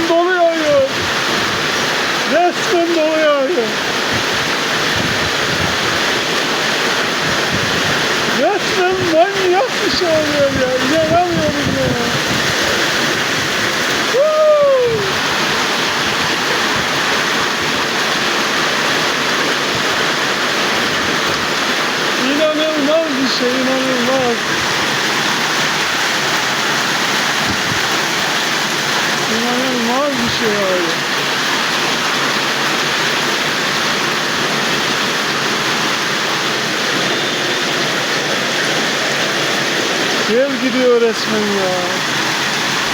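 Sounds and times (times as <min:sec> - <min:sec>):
torrential rain pouring: 0:00.0 - 0:42.9
person exclaiming: 0:14.0 - 0:15.3.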